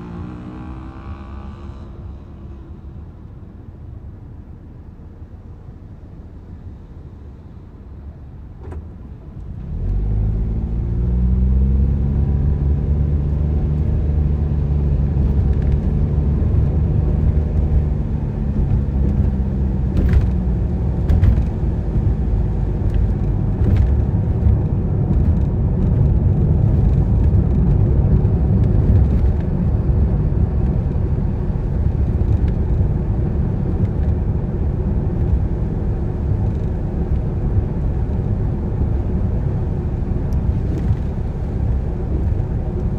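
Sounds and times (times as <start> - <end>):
car engine accelerating: 0.0 - 4.1
road and tyre noise: 0.0 - 42.9.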